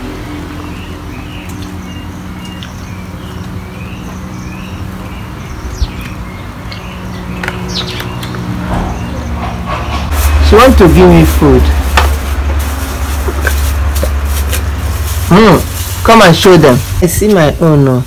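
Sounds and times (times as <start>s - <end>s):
small birds chirping: 0.1s - 11.8s.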